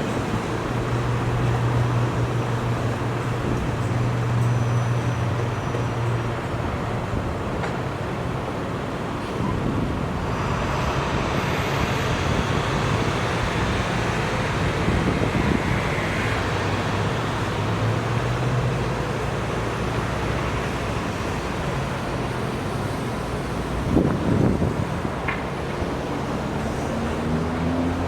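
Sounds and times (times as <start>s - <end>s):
low engine hum: 0.0s - 28.0s
road noise: 0.0s - 28.0s
motor vehicles passing: 23.9s - 28.0s.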